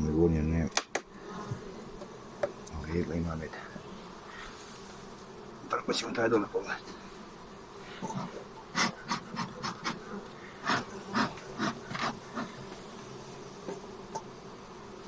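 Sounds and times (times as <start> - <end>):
bees buzzing: 0.0 - 15.0
wooden hive parts knocking: 0.7 - 1.1, 2.0 - 2.7.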